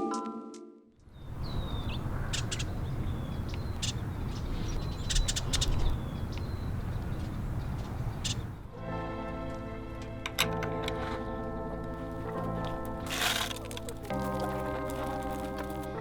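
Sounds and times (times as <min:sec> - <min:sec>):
birds chirping: 0:01.0 - 0:08.8.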